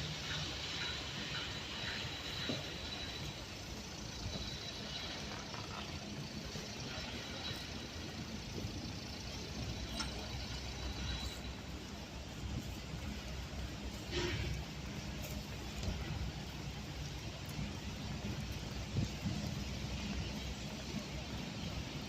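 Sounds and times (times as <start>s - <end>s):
tyres hissing on wet road: 0.0s - 22.0s.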